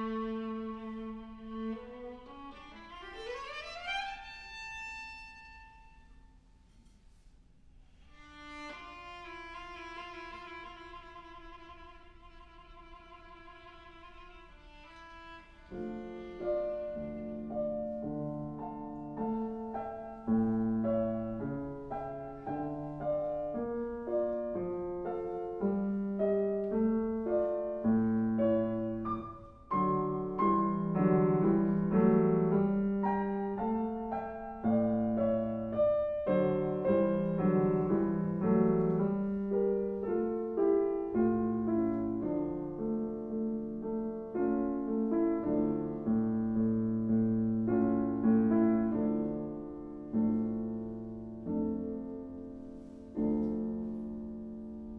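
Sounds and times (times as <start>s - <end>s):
piano chords: 0.0s - 6.0s, 8.1s - 54.9s.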